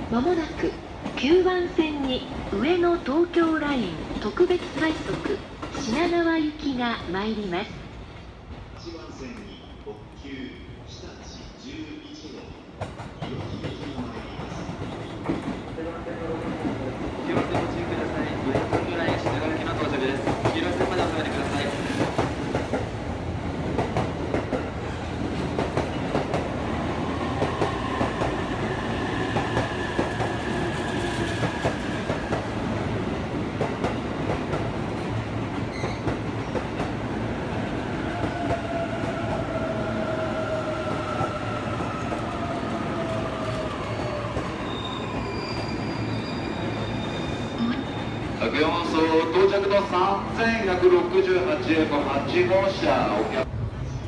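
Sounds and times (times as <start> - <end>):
electric train rumbling: 0.0 - 54.0.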